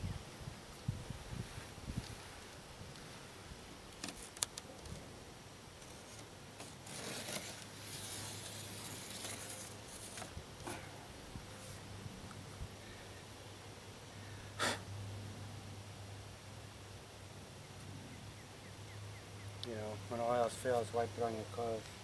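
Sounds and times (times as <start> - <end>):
foam board scraping: 5.8 - 10.4.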